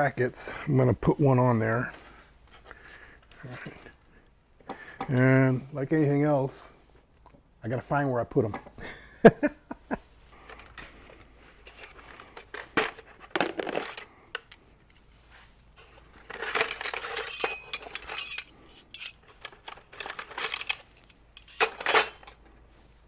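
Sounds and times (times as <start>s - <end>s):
metal hardware clinking: 16.2s - 22.4s.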